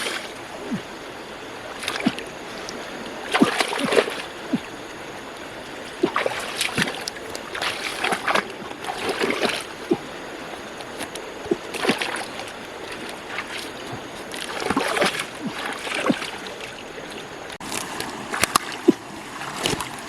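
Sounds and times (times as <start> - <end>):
water plops: 0.0 - 1.0, 1.7 - 20.0
steady watery hiss: 0.0 - 20.0
water splashing and sloshing: 0.0 - 20.0.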